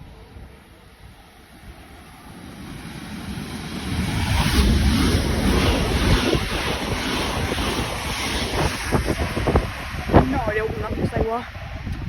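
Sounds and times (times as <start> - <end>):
wind buffeting microphone: 0.0 - 12.0
train wheels rushing on rails: 1.2 - 12.0.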